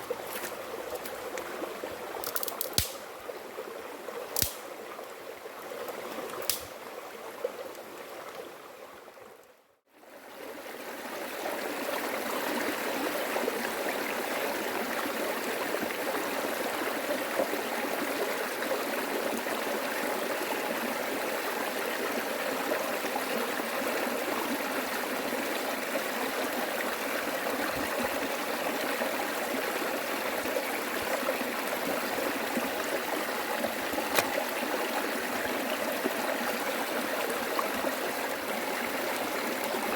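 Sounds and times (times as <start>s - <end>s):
running water rushing: 10.3s - 39.9s.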